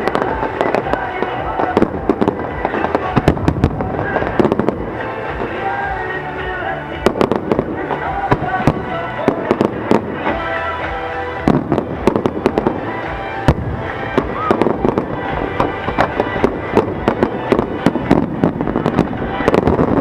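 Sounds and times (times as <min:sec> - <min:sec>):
heavy firework booms: 0:00.0 - 0:05.5, 0:11.4 - 0:12.8, 0:13.5 - 0:20.0
fireworks bursting and crackling: 0:00.0 - 0:20.0
music playing: 0:00.0 - 0:20.0.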